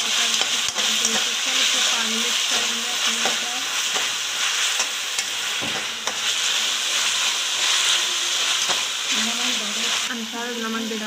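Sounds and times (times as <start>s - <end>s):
vegetables sizzling in oil: 0.0s - 11.0s
spoon clicking against pan: 0.3s - 1.3s, 4.8s - 6.2s.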